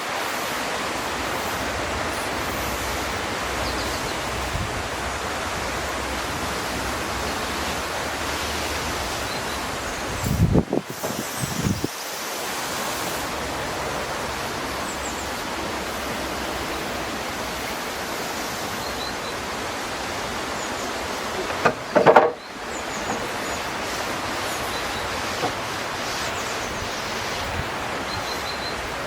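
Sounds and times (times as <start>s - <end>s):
steady rushing noise: 0.0s - 29.0s
handling knock: 21.4s - 22.4s.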